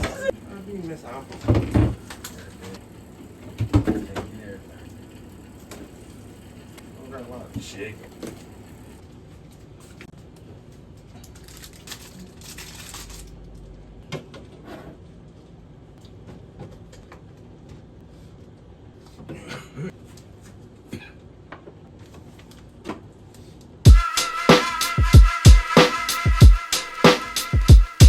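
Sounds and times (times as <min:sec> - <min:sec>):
packaging rustling: 0:11.2 - 0:13.5.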